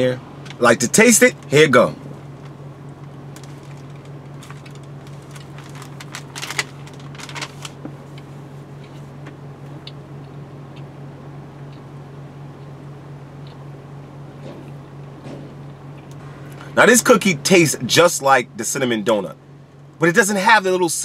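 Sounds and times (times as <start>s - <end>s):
steady low hum: 0.0s - 21.0s
person chewing cookie: 11.6s - 16.8s.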